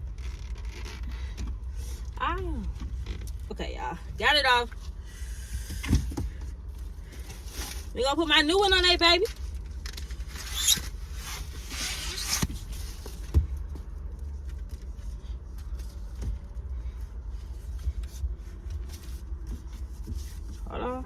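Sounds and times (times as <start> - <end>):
steady low rumble: 0.0 - 21.0
scraping and rustling by hand: 9.2 - 21.0.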